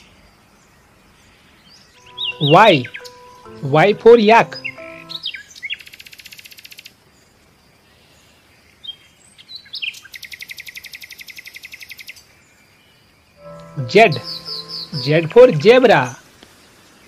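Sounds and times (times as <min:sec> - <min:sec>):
short high bird chirps: 0:02.0 - 0:05.4.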